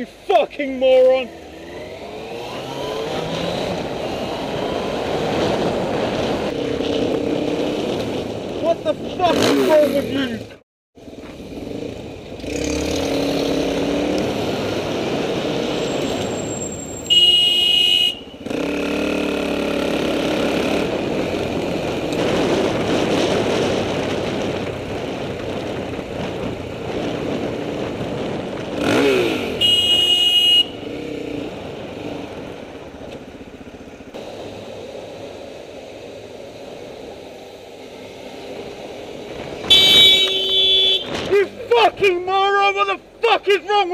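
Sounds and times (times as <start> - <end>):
horn blasts: 17.1 - 18.5, 29.6 - 30.8, 39.6 - 41.2
wind noise: 20.6 - 29.7, 39.0 - 42.0.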